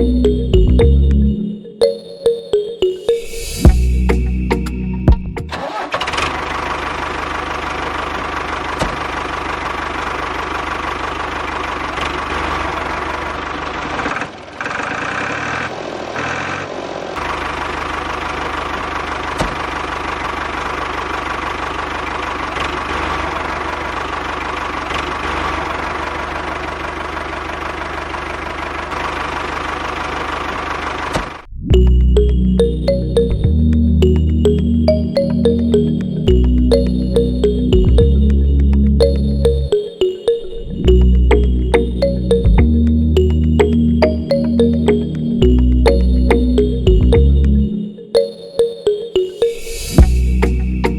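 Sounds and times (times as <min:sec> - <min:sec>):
engine idling with knocking throb: 0:06.0 - 0:31.4, 0:36.3 - 0:39.4.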